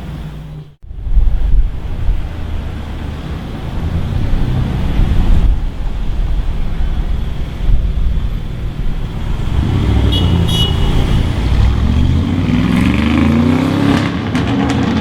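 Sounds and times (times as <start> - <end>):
car engine accelerating: 0.0 - 15.0
low wind rumble: 0.0 - 15.0.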